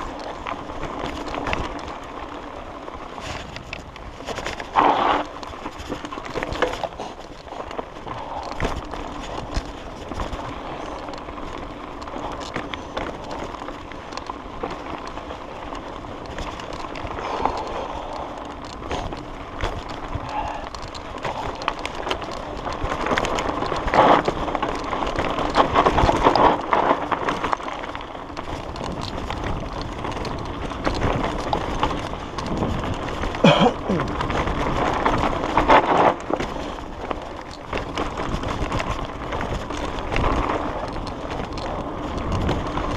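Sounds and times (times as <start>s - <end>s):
bike knocking and rattling: 0.0s - 42.9s
bike tyres on dirt: 0.0s - 42.9s.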